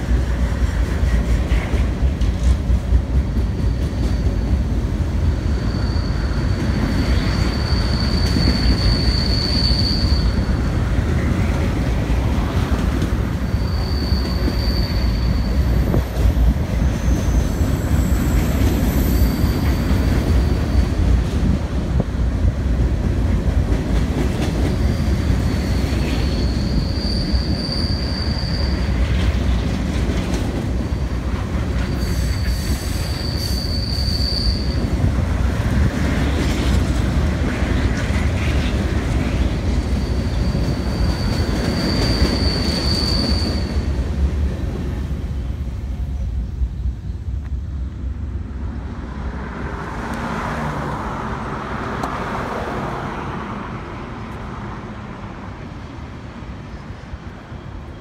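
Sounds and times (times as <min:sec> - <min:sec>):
train wheels rumbling on rail: 0:00.0 - 0:58.0
high-pitched wheel squeal: 0:03.6 - 0:04.7, 0:05.4 - 0:10.8, 0:13.3 - 0:16.1, 0:16.8 - 0:21.0, 0:24.7 - 0:29.0, 0:31.9 - 0:35.0, 0:39.9 - 0:43.9.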